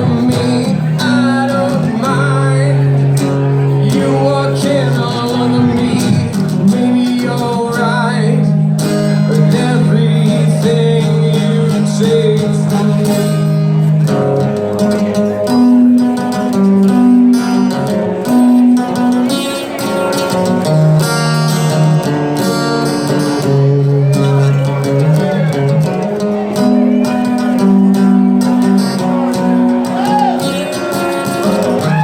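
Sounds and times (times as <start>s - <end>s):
guitar chords: 0.0s - 32.0s
live band music: 8.3s - 32.0s.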